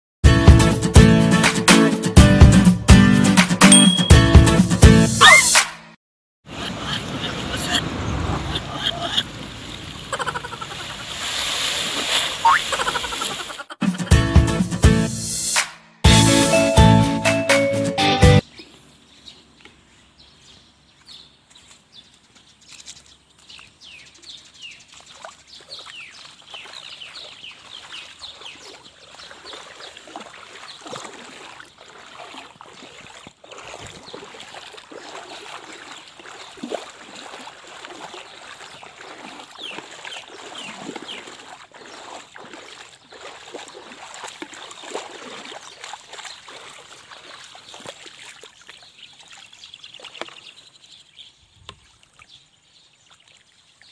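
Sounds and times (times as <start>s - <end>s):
high bird chirps: 3.7s - 4.2s
river water splashing from wading: 6.5s - 13.7s, 22.8s - 53.9s.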